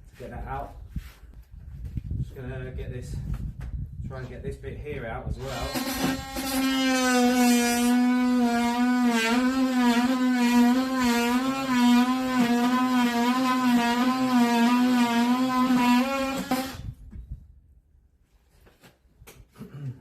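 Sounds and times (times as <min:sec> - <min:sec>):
oscillating multi-tool buzzing: 0:05.4 - 0:16.8.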